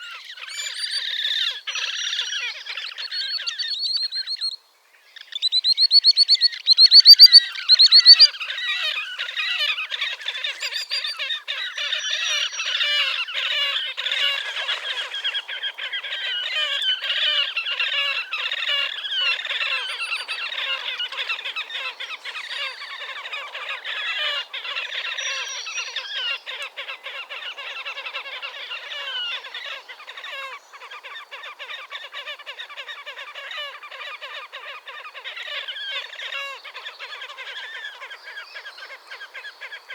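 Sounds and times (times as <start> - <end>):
high trilling bird calls: 5.2 - 26.6
frogs calling: 5.2 - 39.9.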